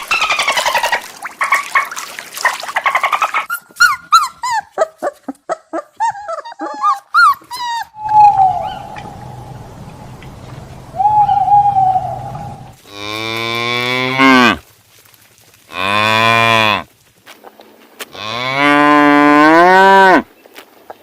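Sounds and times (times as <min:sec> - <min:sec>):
faint whistled animal call: 0:08.0 - 0:09.5
low hum: 0:08.0 - 0:12.8
deep drawn-out animal calls: 0:08.0 - 0:13.2.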